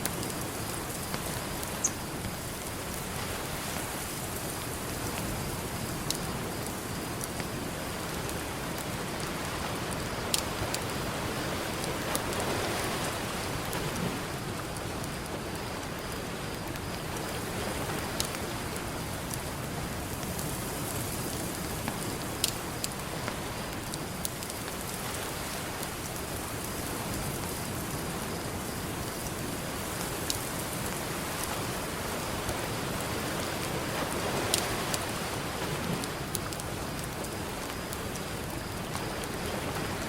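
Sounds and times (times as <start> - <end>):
campfire crackling: 0.0 - 40.0
ocean surf: 30.7 - 36.2.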